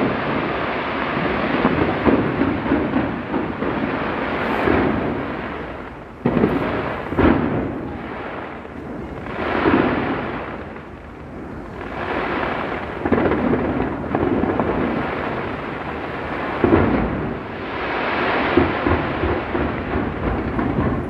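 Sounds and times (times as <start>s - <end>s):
fireworks bangs: 0.0s - 21.0s
rolling fireworks booms: 0.0s - 21.0s.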